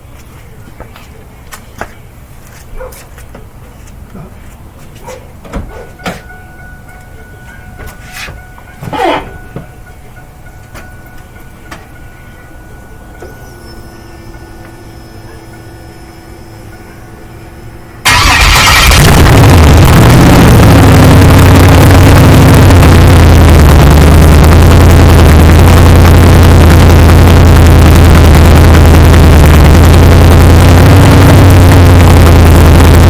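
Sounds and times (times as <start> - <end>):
faint steady hum: 9.3 - 33.0
engine starting and idling: 18.0 - 33.0.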